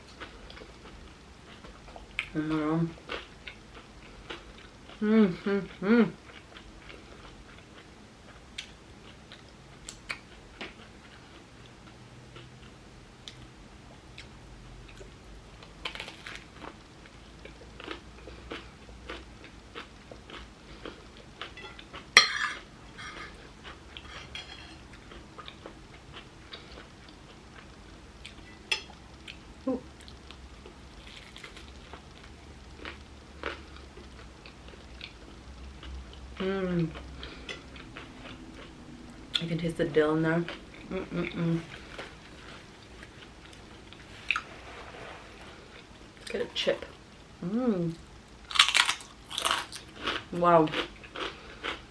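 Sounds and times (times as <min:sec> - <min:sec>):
chewing and crunching toast: 0:05.6 - 0:29.4, 0:30.0 - 0:39.5, 0:48.5 - 0:51.9.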